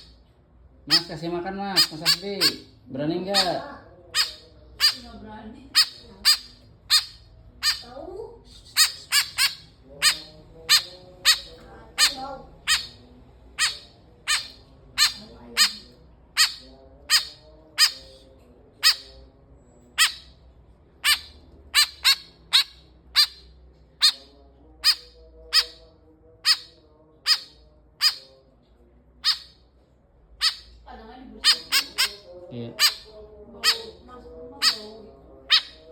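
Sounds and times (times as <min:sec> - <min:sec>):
young bird begging calls: 0:00.9 - 0:08.1, 0:08.7 - 0:18.1, 0:26.4 - 0:28.3, 0:31.4 - 0:34.0, 0:34.6 - 0:35.8.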